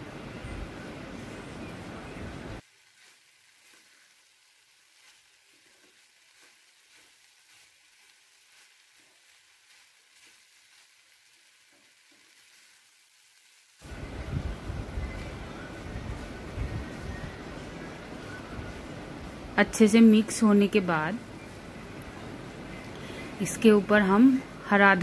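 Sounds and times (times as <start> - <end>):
rice sizzling in pan: 0.0 - 25.0.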